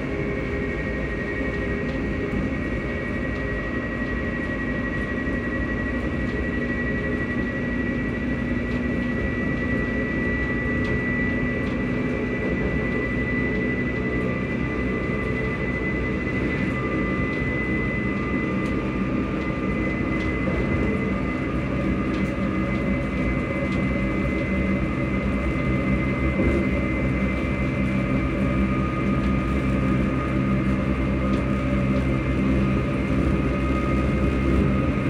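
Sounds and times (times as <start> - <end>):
traction motor high whine: 0.0 - 35.0
train rumbling from inside carriage: 0.0 - 35.0.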